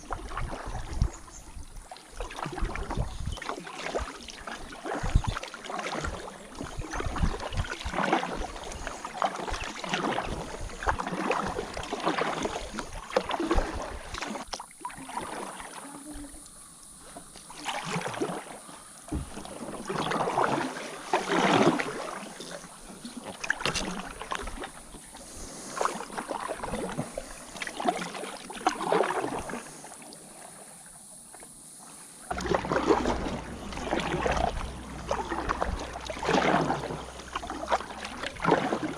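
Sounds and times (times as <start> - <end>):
paddle splashing through water: 0.0 - 38.9
low rumble: 32.3 - 38.5.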